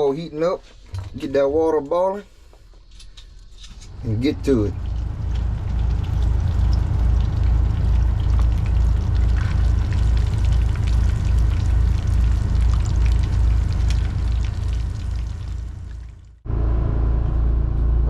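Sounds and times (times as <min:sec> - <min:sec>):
portable generator running: 0:03.9 - 0:16.1.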